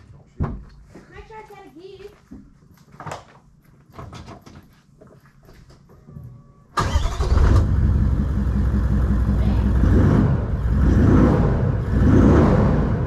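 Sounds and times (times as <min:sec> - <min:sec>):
engine starting and idling: 0:06.8 - 0:12.3.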